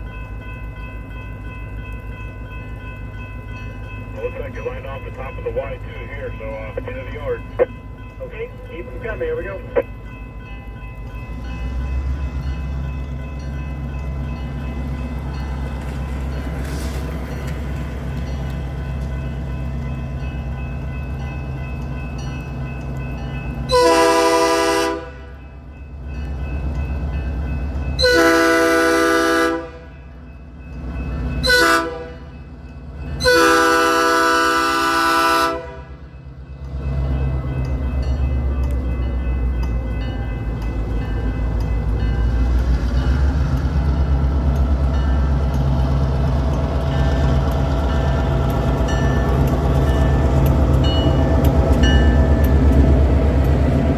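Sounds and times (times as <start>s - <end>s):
locomotive engine rumble: 0.0s - 53.9s
train horn blasts: 23.7s - 25.4s, 28.0s - 30.0s, 31.4s - 32.3s, 33.2s - 36.1s.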